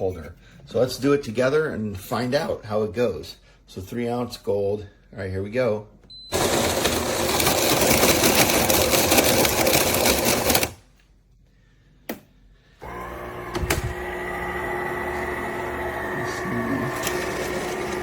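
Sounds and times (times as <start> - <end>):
coffee maker humming: 6.3 - 10.7, 12.8 - 18.0
grinder grinding coffee beans: 6.3 - 10.8, 12.8 - 18.0.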